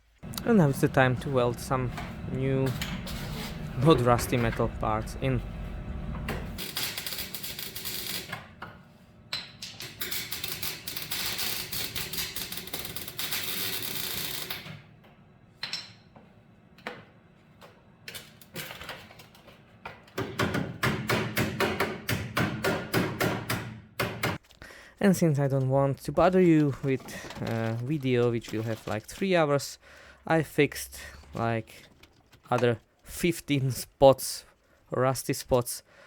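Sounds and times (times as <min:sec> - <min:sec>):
welding crackle: 0:06.5 - 0:08.3, 0:10.0 - 0:14.6.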